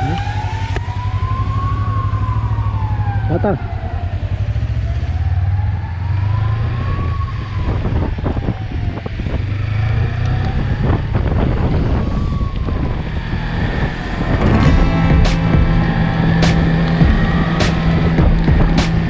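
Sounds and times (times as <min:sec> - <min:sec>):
wind and road noise: 0:00.0 - 0:19.0
motorcycle engine rumble: 0:14.4 - 0:19.0.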